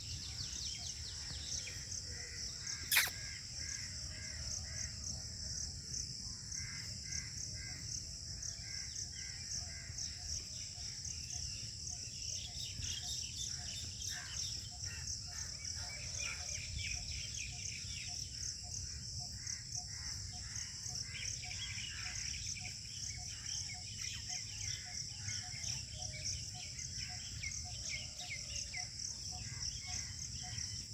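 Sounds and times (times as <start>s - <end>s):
high insect chorus: 0.0s - 30.9s
birds chirping: 2.8s - 3.2s.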